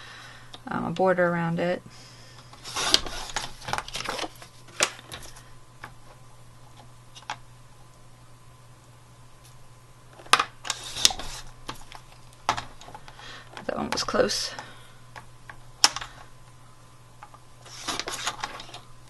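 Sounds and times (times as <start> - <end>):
faint steady hum: 0.0 - 19.0
paper rustling: 2.6 - 5.5, 10.6 - 13.0, 17.6 - 18.9.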